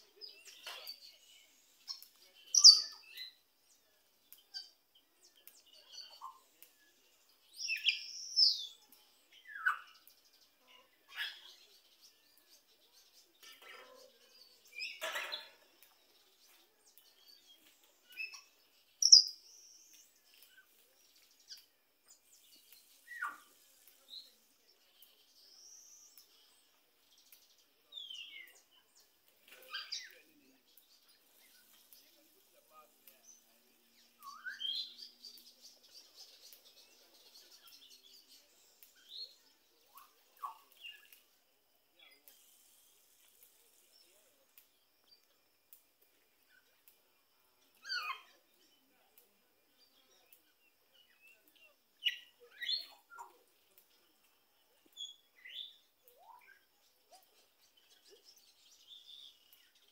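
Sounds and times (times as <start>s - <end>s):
birds chirping and whistling: 0.1s - 41.3s, 47.5s - 48.8s, 49.8s - 59.9s
loud sharp bird calls: 1.8s - 3.4s.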